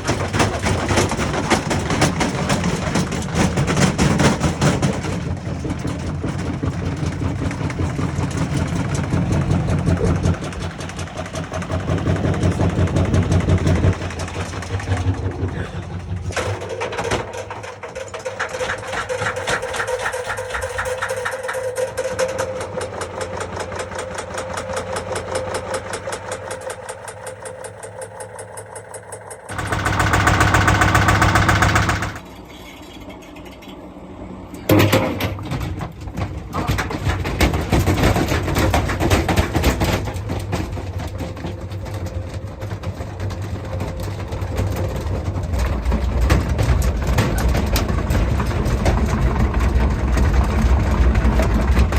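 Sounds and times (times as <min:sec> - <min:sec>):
washing machine knocking: 0:00.0 - 0:32.2.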